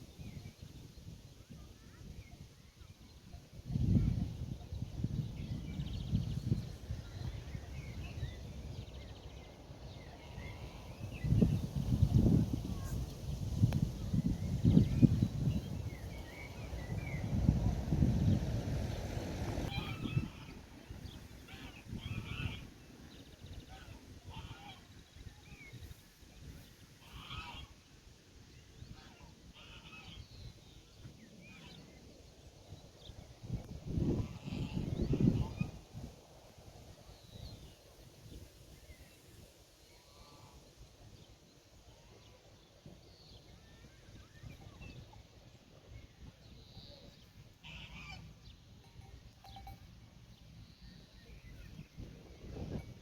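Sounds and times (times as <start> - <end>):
farmyard fowl calling: 27.0 - 27.7, 47.6 - 48.3.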